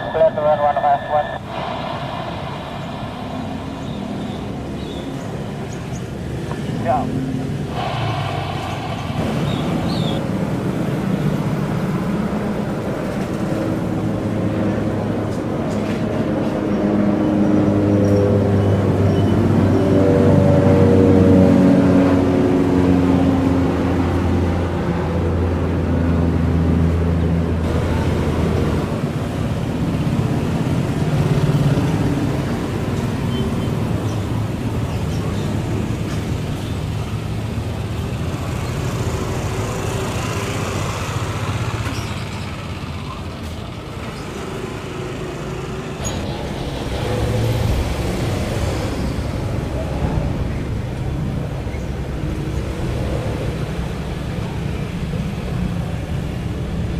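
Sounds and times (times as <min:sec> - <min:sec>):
broad rushing sound: 0:00.0 - 0:15.2
propeller engine drone: 0:00.0 - 0:56.9.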